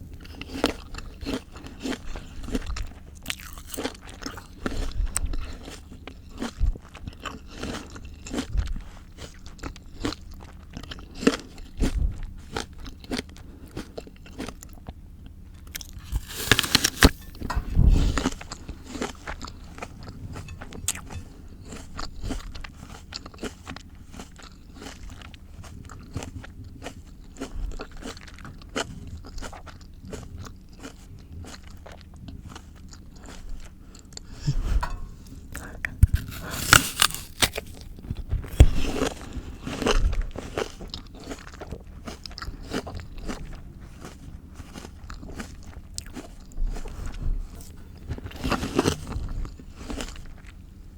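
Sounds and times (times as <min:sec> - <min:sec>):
crunchy chewing: 0:00.0 - 0:50.8
loud crunchy bite: 0:00.3 - 0:05.0, 0:15.7 - 0:19.1, 0:34.8 - 0:40.0.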